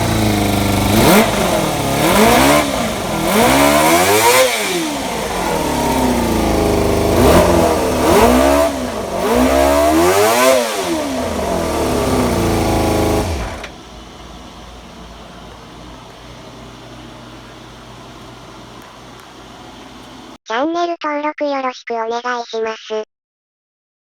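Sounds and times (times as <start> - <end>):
motorcycle engine revving: 0.0 - 17.5.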